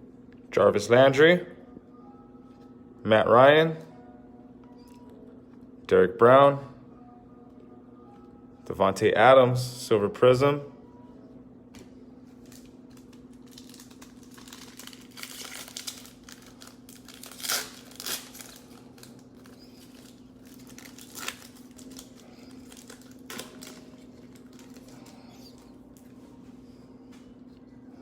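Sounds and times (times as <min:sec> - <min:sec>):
steady low hum: 0:00.0 - 0:28.0
foil wrappers crinkling and tearing: 0:12.3 - 0:26.2
cards rustling: 0:12.4 - 0:26.2.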